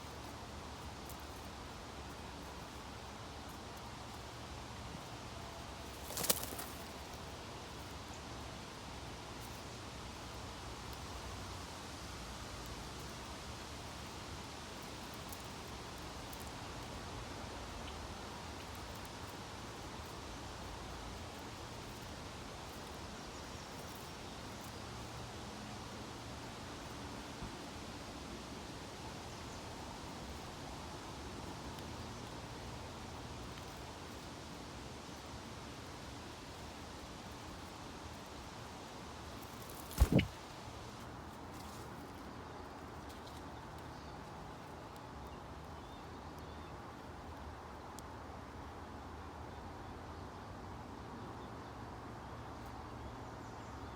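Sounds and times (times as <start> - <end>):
outdoor ambient hiss: 0.0 - 53.9
faint bird chirps: 39.4 - 40.4.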